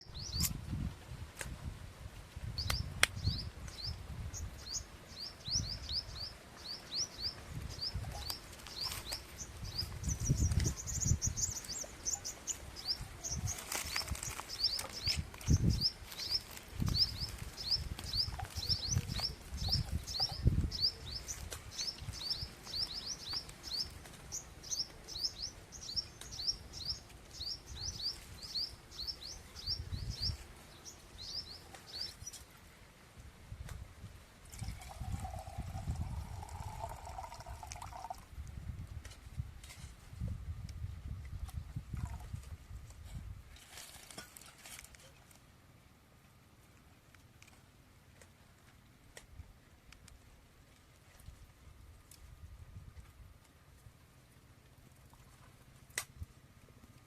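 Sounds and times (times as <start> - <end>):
small birds chirping rapidly: 0.0 - 0.6, 2.6 - 32.5, 34.7 - 38.2
rustles: 0.0 - 57.0.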